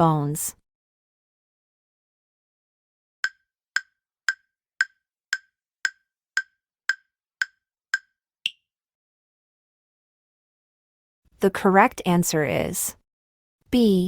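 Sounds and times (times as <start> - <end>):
countdown timer ticks: 3.2 - 8.6.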